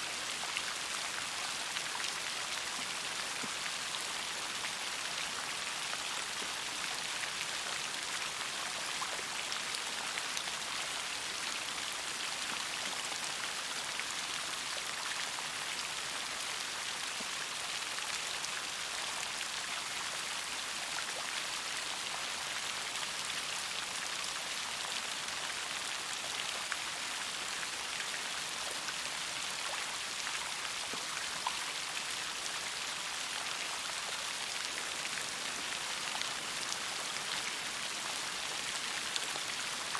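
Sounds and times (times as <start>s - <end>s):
rain falling: 23.7s - 39.9s.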